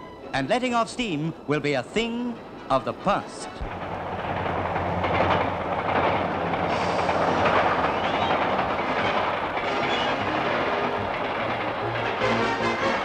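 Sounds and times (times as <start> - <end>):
train wheels on rails: 0.0 - 13.0.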